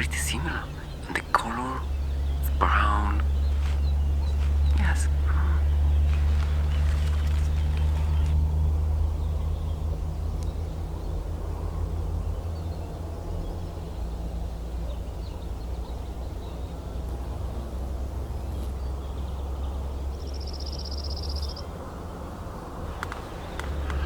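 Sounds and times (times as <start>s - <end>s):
low rumble: 0.0s - 20.3s
faint bird chirps: 18.4s - 21.7s.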